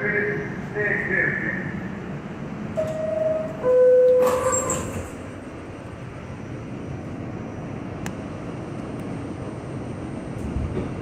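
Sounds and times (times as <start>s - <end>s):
subway car rumble: 0.0s - 11.0s.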